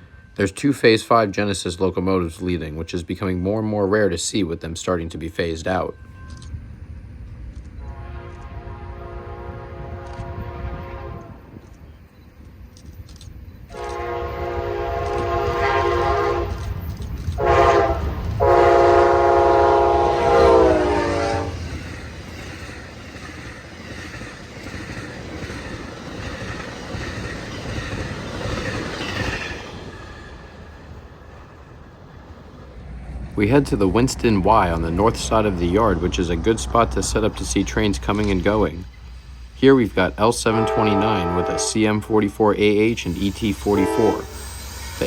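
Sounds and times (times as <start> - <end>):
train rumble: 0.0 - 45.0
locomotive horn blasts: 7.8 - 11.6, 13.7 - 21.7, 40.4 - 42.5, 43.4 - 45.0
wheels clacking over rail joints: 11.4 - 42.0.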